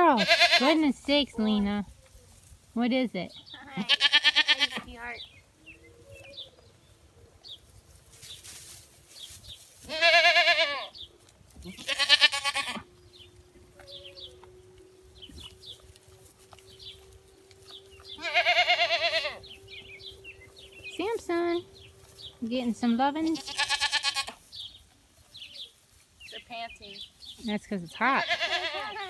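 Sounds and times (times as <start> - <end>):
goats bleating: 0.0 - 0.8, 3.6 - 5.1, 9.9 - 11.0, 11.6 - 12.9, 18.1 - 19.6, 23.2 - 24.4, 28.0 - 29.0.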